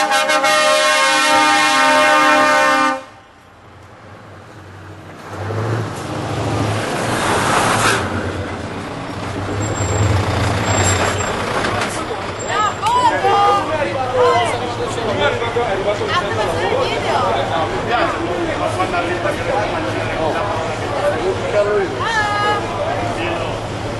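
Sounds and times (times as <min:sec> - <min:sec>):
truck air horn: 0:00.0 - 0:03.3
diesel truck engine rumbling: 0:00.0 - 0:23.9.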